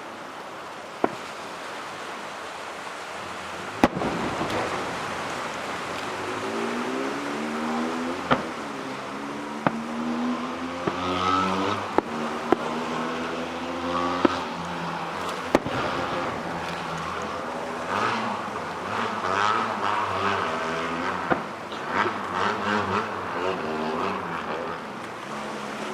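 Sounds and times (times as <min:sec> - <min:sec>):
fireworks rumble and crackle: 0:00.0 - 0:25.9
fireworks bursting in sharp bangs: 0:03.6 - 0:06.4, 0:15.1 - 0:18.4.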